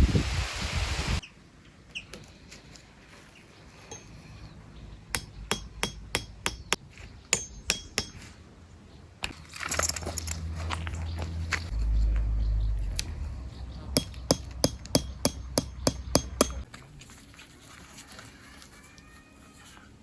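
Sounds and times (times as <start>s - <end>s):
sharp metallic knocks: 5.1s - 8.3s, 14.0s - 16.7s.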